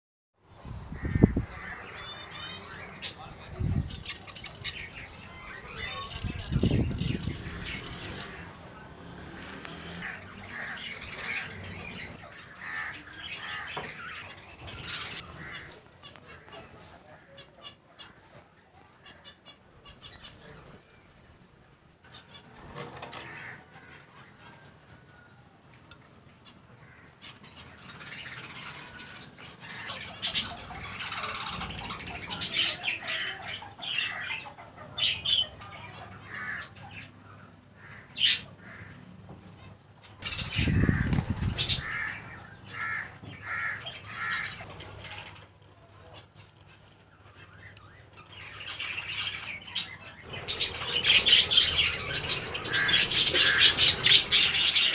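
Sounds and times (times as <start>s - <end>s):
parrots chirping and squawking: 0.8s - 15.8s, 26.4s - 45.4s, 47.5s - 54.9s.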